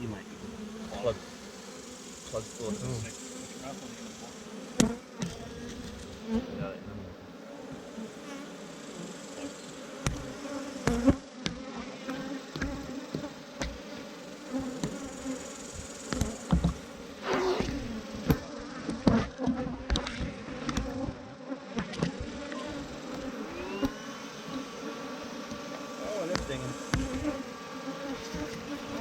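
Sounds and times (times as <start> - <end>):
honeybees buzzing: 0.0 - 29.0
knocks and thumps: 12.5 - 13.8, 16.1 - 16.8, 26.3 - 27.4.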